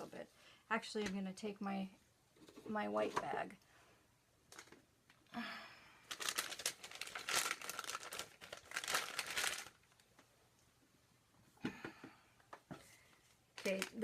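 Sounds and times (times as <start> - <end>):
plastic bag crinkling: 6.1 - 10.1, 13.6 - 14.0.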